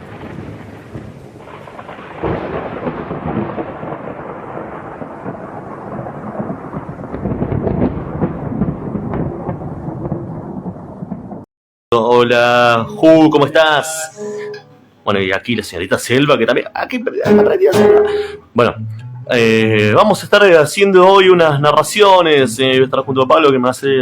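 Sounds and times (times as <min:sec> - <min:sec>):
steady rain: 0:00.0 - 0:11.4
rolling thunder: 0:00.0 - 0:11.5.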